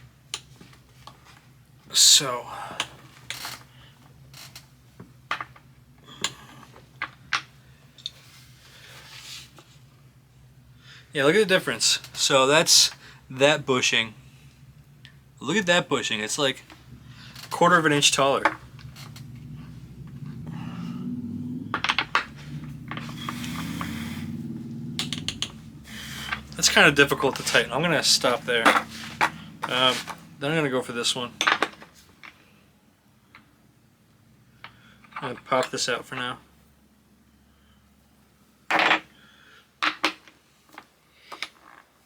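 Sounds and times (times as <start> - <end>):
steady low hum: 0.0 - 31.4.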